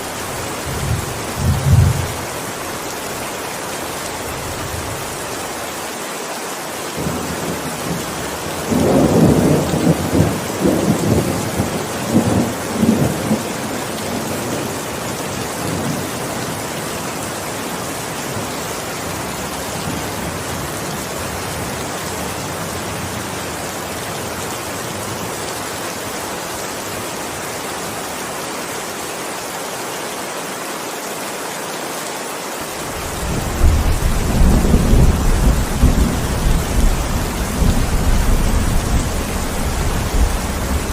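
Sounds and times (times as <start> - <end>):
heavy rain falling: 0.0 - 40.9
thunder rumbling: 0.7 - 2.2, 33.0 - 40.9.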